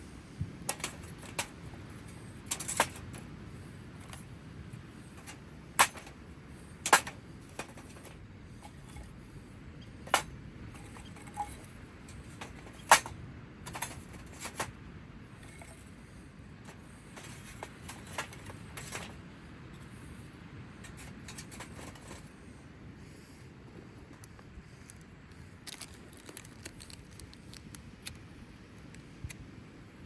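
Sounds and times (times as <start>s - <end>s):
faint steady rush: 0.0s - 26.1s
small hard items clicking: 0.7s - 3.2s, 24.2s - 28.2s.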